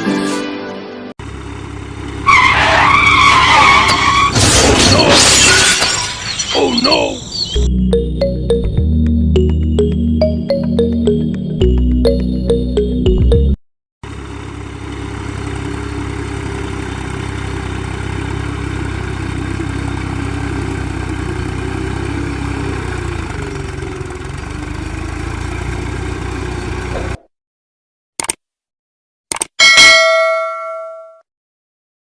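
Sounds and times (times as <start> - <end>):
truck engine idling: 1.2 - 4.3, 14.0 - 27.2.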